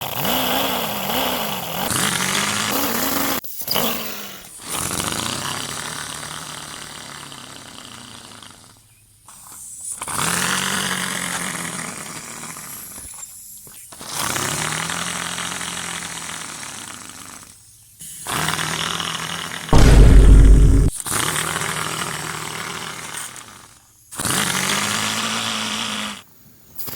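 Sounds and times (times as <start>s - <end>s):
engine-like sound revving: 19.8s - 20.9s.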